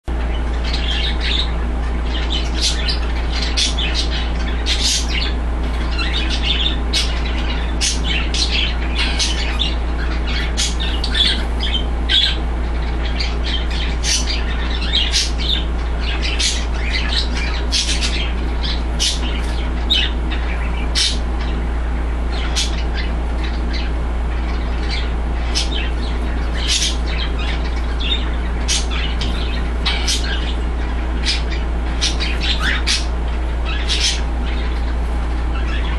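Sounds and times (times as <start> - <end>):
small birds chirping and squawking: 0.1 - 35.9
steady low hum: 0.1 - 35.9.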